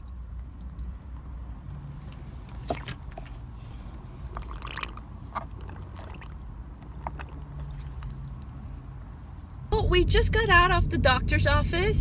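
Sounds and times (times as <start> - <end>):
bird eating wet clicks and squelches: 0.0 - 9.7
low hum: 9.4 - 12.0.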